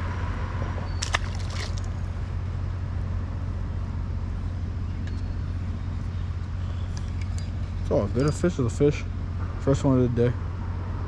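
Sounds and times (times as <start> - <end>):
fish splashing into water: 1.0 - 2.1.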